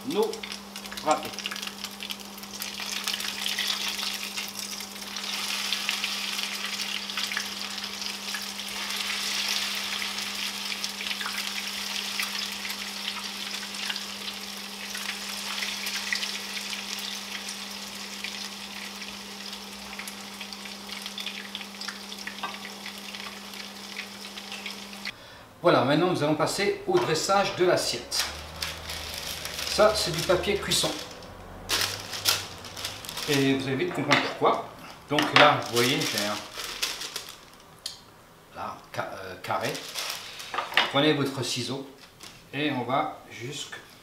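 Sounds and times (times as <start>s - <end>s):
potato cakes sizzling in oil: 0.0s - 25.2s.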